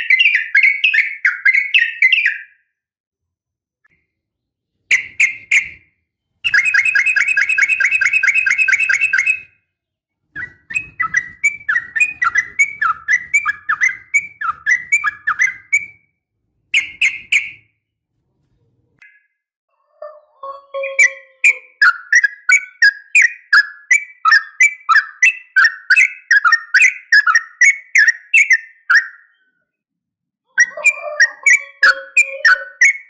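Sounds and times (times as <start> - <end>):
bird calling: 6.4 - 9.5, 10.3 - 16.0, 30.6 - 33.0.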